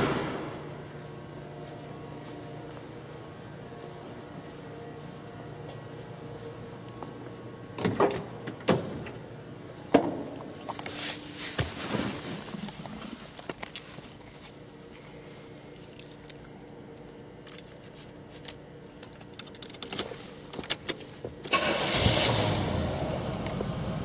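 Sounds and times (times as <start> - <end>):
keys jangling: 18.4 - 21.0
car engine cranking and starting: 21.5 - 24.0.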